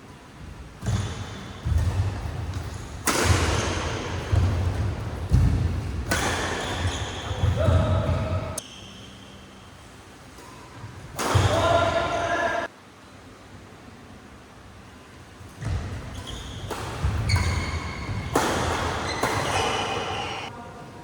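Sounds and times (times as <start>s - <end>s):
racket hitting shuttlecock: 0.8s - 8.6s, 11.1s - 12.0s, 15.6s - 20.5s
shoe squeaks: 6.1s - 9.6s, 15.6s - 20.5s.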